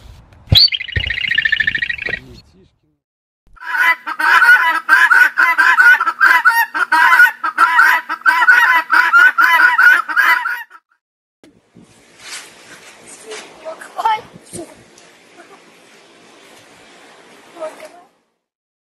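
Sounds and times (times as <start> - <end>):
guineafowl calling: 0.6 - 2.3, 3.6 - 10.8.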